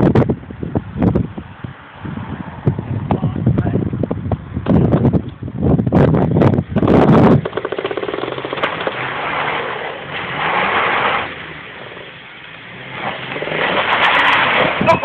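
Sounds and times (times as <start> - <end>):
truck engine revving: 6.8 - 15.0.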